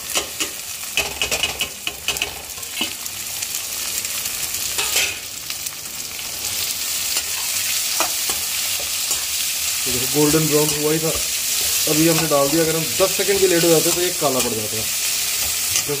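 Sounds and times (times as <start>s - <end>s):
paste sizzling in hot oil: 0.0s - 16.0s
spoon scraping and knocking on pan: 0.2s - 3.0s.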